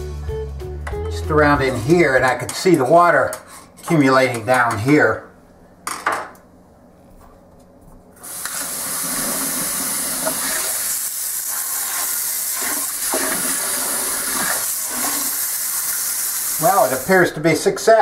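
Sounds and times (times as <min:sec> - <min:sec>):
faucet water running into sink: 0:08.2 - 0:17.2.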